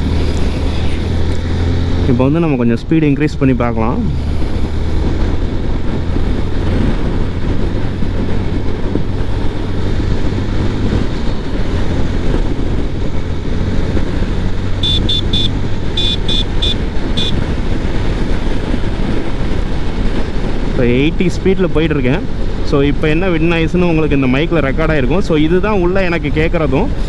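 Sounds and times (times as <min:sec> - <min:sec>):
wind noise on microphone: 0:00.0 - 0:27.0
horn beeping short high toots: 0:14.8 - 0:17.4.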